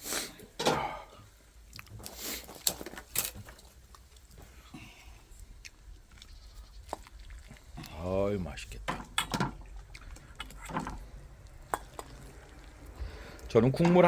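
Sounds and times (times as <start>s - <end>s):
person slurping: 0.0s - 1.1s
person chewing: 1.5s - 8.2s, 8.8s - 13.5s.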